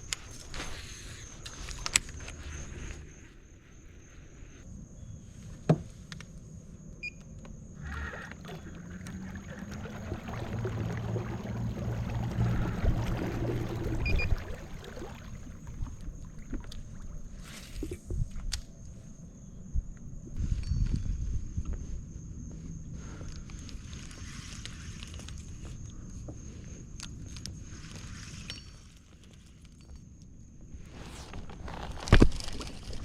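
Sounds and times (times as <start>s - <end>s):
low steady hum: 6.4s - 22.8s.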